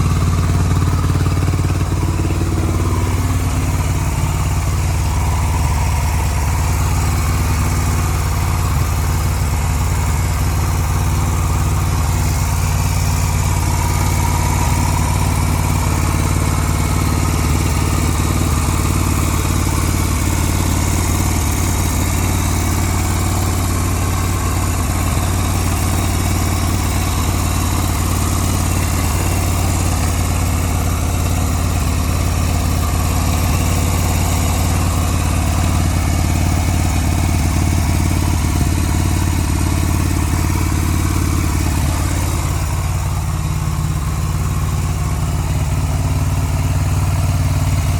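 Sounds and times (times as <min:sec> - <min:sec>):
motorcycle engine idling: 0:00.0 - 0:47.9.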